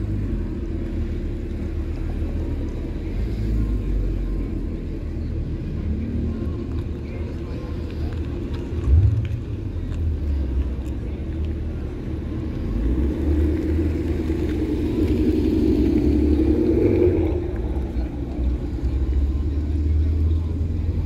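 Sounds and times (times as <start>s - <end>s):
motor vehicle running: 0.0s - 21.0s.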